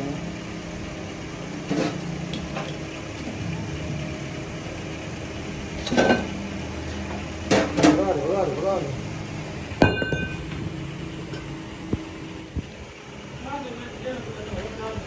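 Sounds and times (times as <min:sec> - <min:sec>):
mechanical engine hum: 0:00.0 - 0:15.0
sharp metal knocks: 0:09.8 - 0:10.5.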